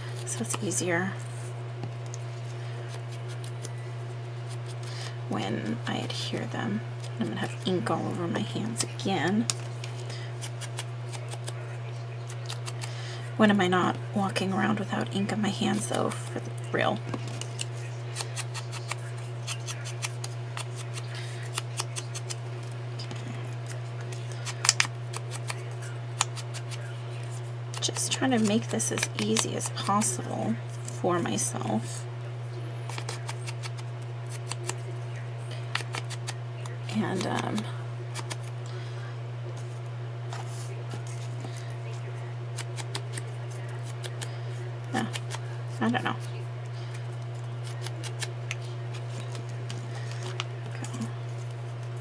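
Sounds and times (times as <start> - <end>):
steady low hum: 0.0 - 52.0
paper clicks and snips: 17.3 - 22.4, 24.0 - 25.6.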